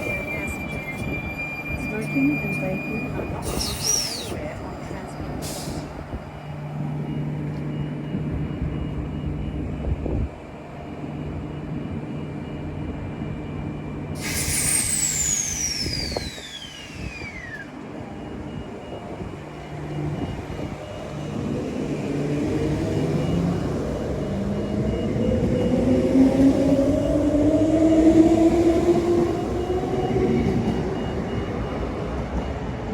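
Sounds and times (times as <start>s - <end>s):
electric train humming: 0.0s - 32.9s
traction motor whine rising: 14.2s - 18.0s
high tone sliding down: 14.5s - 17.8s.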